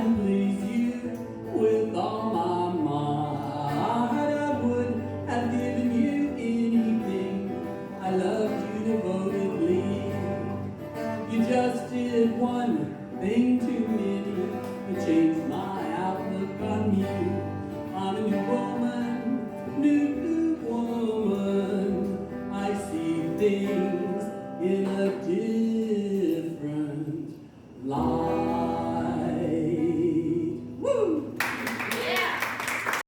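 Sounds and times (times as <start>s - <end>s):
acoustic guitar: 0.0s - 32.6s.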